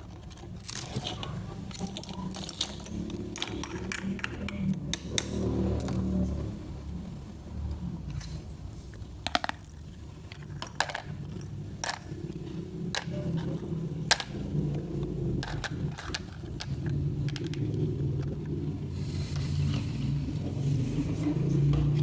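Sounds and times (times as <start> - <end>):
low steady hum: 0.0 - 22.0
toy food clicks and taps: 1.8 - 5.4, 15.4 - 18.3.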